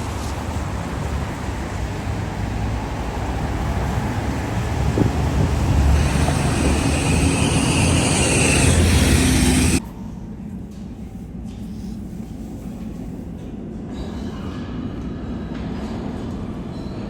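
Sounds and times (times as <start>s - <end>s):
street traffic rumble: 0.0s - 9.8s
tyres hissing on wet road: 0.0s - 9.8s.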